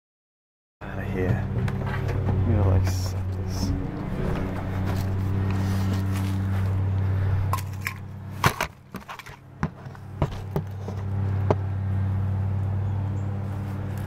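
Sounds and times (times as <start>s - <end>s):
vehicle engine humming: 0.8s - 14.0s.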